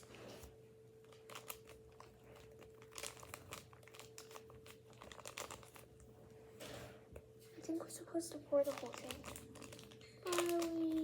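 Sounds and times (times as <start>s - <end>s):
plastic packet crinkling: 0.0s - 6.0s, 8.2s - 11.0s.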